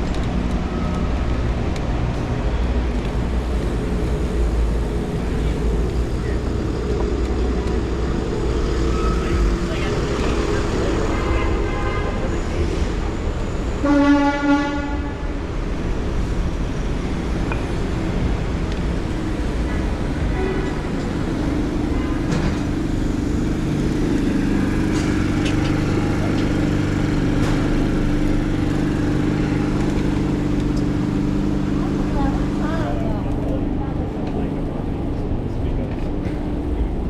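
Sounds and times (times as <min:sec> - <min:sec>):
low engine drone: 0:00.0 - 0:37.0
street traffic rumble: 0:00.0 - 0:37.0
vehicle horn honking: 0:11.0 - 0:12.4, 0:13.8 - 0:15.3, 0:20.3 - 0:21.2.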